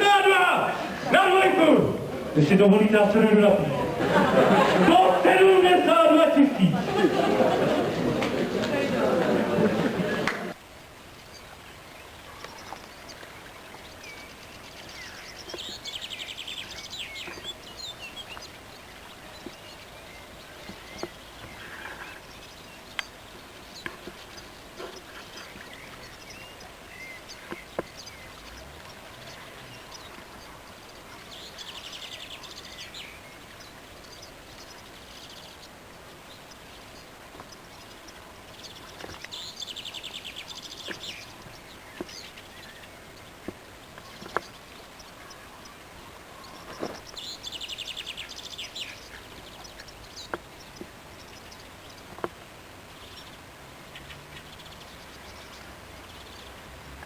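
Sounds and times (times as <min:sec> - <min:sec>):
background hiss: 0:00.0 - 0:57.0
songbird trilling: 0:11.2 - 0:52.3.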